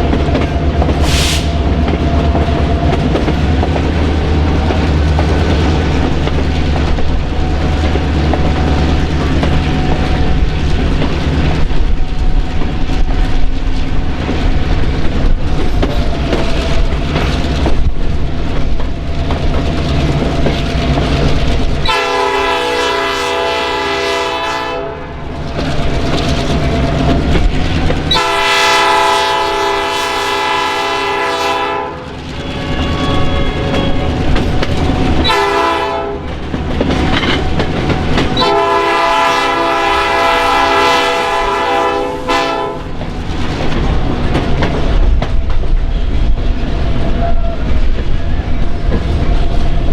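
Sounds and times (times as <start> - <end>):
train wheels clattering on rails: 0.0 - 49.9
multi-tone train horn: 21.8 - 25.2, 28.1 - 34.3, 35.2 - 36.3, 38.2 - 43.0.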